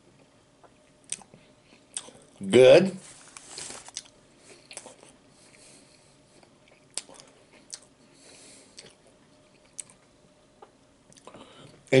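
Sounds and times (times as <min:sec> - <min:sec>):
person chewing: 0:00.6 - 0:02.3, 0:03.4 - 0:05.7, 0:06.4 - 0:08.0, 0:08.6 - 0:11.4.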